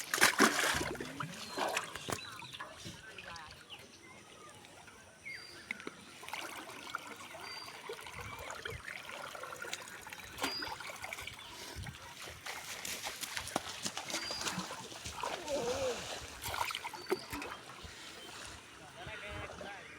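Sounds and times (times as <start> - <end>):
water trickling and splashing: 0.0 - 19.9.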